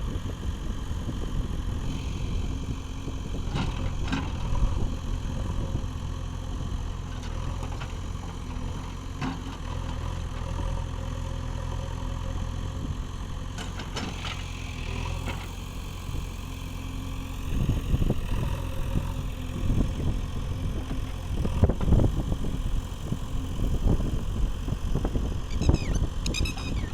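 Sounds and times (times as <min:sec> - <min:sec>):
diesel engine running: 0:00.0 - 0:26.9.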